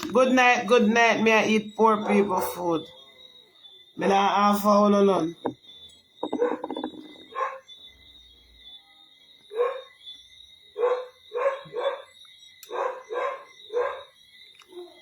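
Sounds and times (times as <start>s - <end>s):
faint high-pitched tone: 0.0s - 15.0s
dog barking: 6.3s - 7.6s, 9.5s - 10.0s, 10.8s - 12.1s, 12.7s - 15.0s.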